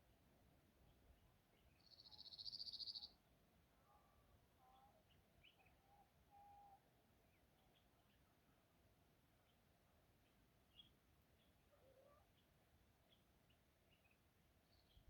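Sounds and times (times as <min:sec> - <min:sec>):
small birds trilling and chirping: 0:00.9 - 0:03.2.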